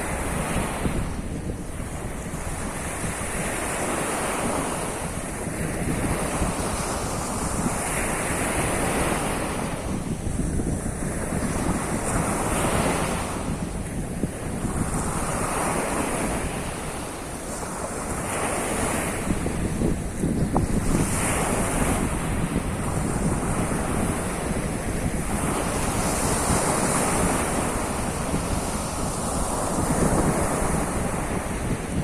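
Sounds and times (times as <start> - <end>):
sea surf washing onto shore: 0.0 - 32.0
wind rumbling on microphone: 0.0 - 32.0.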